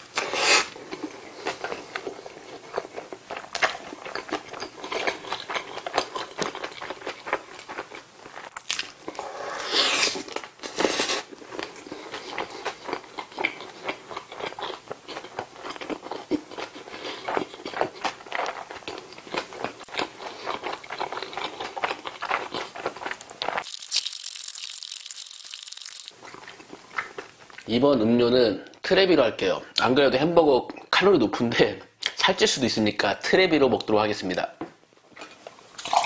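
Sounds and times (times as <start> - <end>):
close chewing and biting: 0.9 - 9.2, 9.9 - 27.7.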